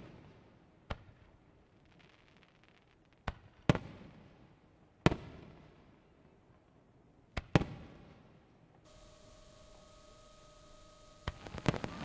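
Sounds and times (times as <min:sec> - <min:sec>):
small firework crack: 0:01.8 - 0:04.2, 0:08.9 - 0:12.0
firework booms echoing: 0:11.2 - 0:12.0.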